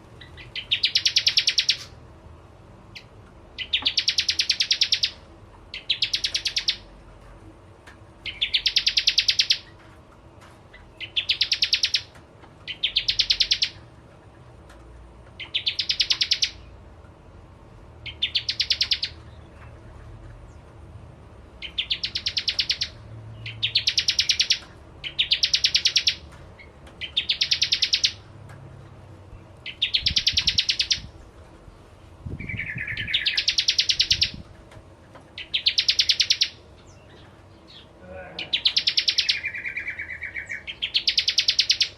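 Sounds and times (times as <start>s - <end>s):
bird rattling trills: 0.2s - 2.0s, 8.2s - 9.8s, 21.6s - 28.2s, 29.6s - 31.1s, 32.4s - 34.5s, 35.3s - 36.6s.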